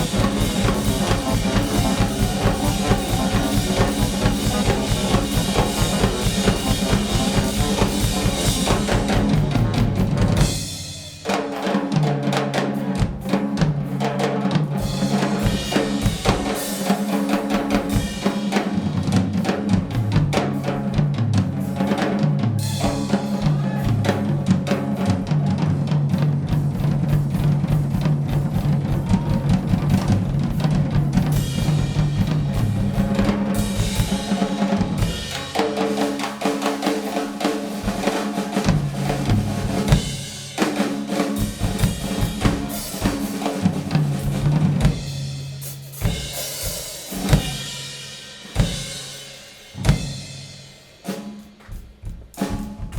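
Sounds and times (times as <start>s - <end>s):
steady bass line: 0.0s - 10.8s
bass drum and snare hits: 0.0s - 11.1s, 37.8s - 45.3s, 47.1s - 47.8s
live band playing: 0.0s - 52.9s.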